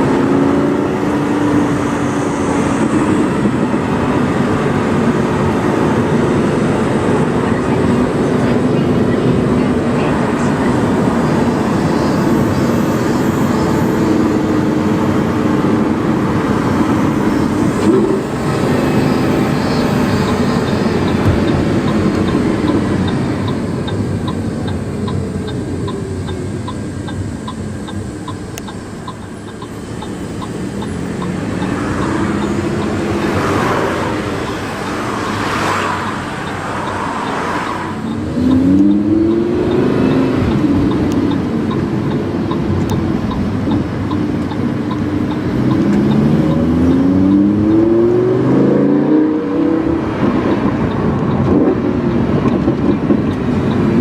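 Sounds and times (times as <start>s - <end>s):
car engine revving: 0.0s - 54.0s
faint regular ticking: 20.2s - 47.8s.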